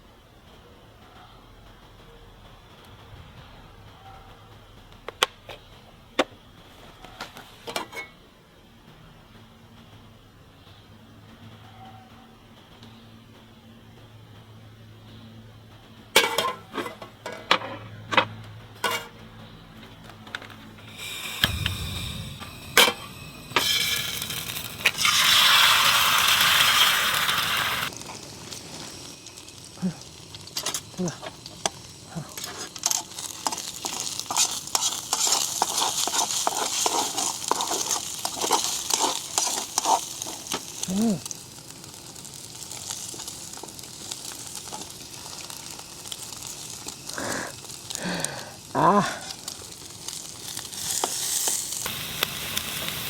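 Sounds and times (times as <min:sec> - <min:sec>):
oil popping and crackling: 0:20.4 - 0:53.0
low steady hum: 0:20.8 - 0:32.5
hot oil sizzling in a pan: 0:20.8 - 0:53.0.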